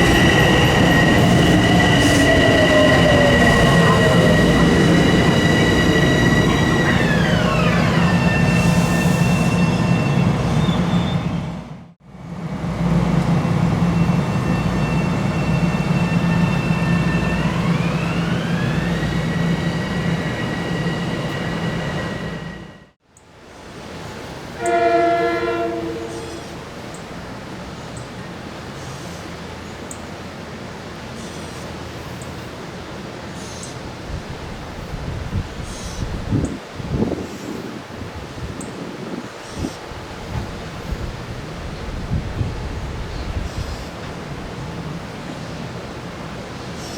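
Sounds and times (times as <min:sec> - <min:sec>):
electric train rumbling past: 0:00.0 - 0:23.0, 0:23.6 - 0:46.9
outdoor hush: 0:12.7 - 0:23.3
train horn: 0:24.5 - 0:26.8.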